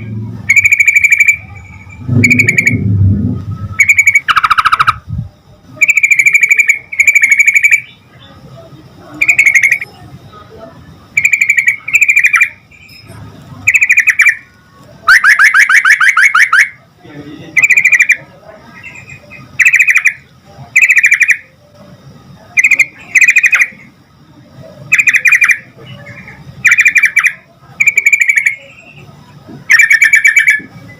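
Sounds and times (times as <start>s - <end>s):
low rumble: 1.7s - 3.8s
bulbul chattering calls: 9.2s - 9.8s, 11.2s - 13.0s, 13.7s - 14.5s, 18.8s - 20.2s, 20.8s - 21.5s, 22.6s - 23.8s, 24.9s - 29.0s, 29.7s - 30.7s.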